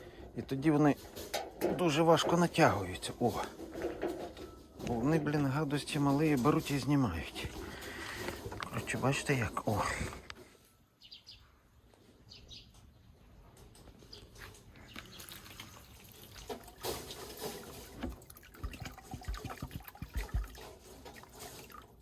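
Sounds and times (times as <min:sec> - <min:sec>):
water pouring and trickling: 0:01.0 - 0:10.2, 0:14.9 - 0:22.0.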